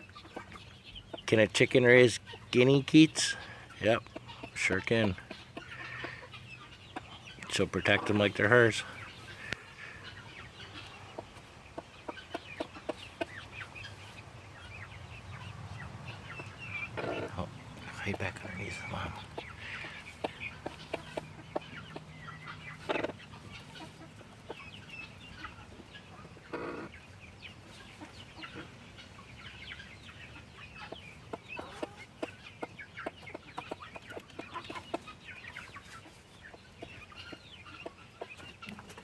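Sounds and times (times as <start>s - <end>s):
chicks peeping: 0.0s - 39.0s
hen clucking: 0.0s - 39.0s.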